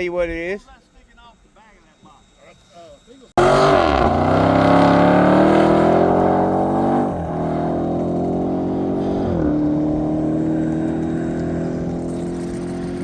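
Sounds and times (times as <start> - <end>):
motorcycle engine accelerating: 3.4 - 13.0.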